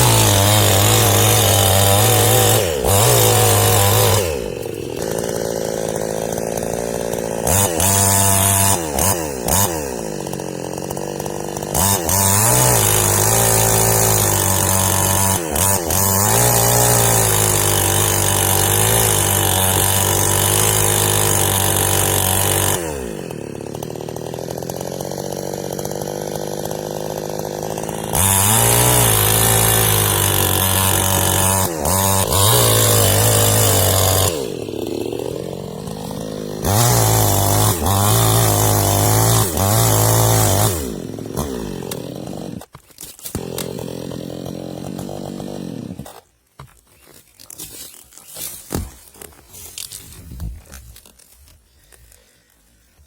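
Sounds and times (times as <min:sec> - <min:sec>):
chainsaw running: 0:00.0 - 0:53.0.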